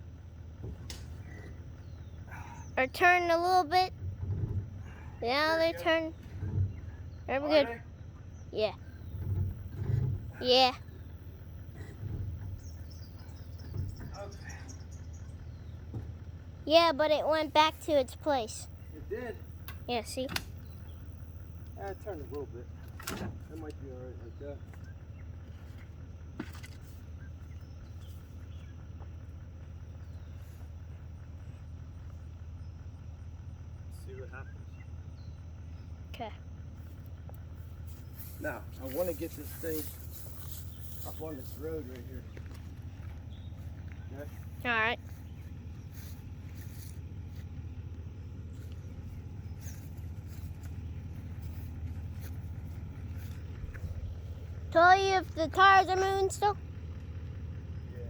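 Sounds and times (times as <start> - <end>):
insects chirping: 0.0 - 58.0
steady low rumble: 0.0 - 58.0
vehicle engine running: 0.0 - 58.0.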